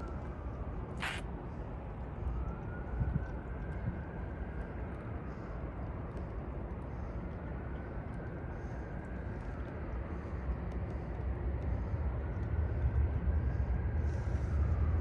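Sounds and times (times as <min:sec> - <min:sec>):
short hiss: 0:01.0 - 0:01.2.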